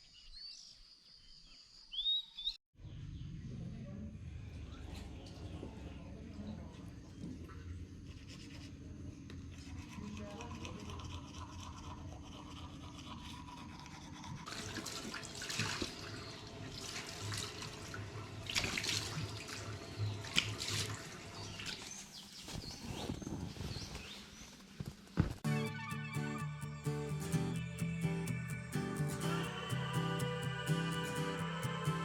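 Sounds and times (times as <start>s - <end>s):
scrubbing strokes with water: 7.3s - 22.5s.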